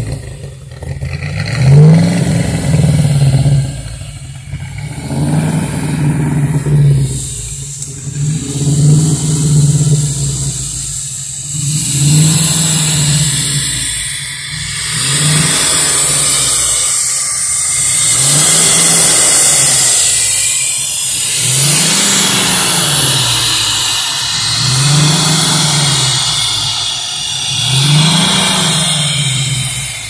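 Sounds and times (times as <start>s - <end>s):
car engine revving: 0.0s - 30.0s
steady hiss: 6.5s - 30.0s.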